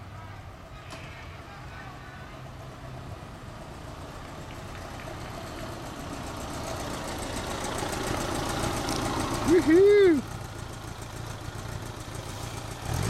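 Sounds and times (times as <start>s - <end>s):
motorcycle engine running: 3.7s - 13.0s.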